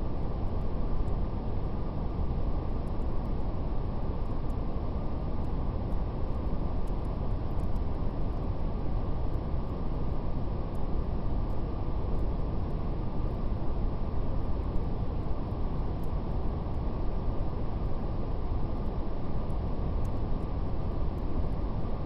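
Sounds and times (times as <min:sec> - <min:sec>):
wood fire crackles: 0:02.0 - 0:21.9.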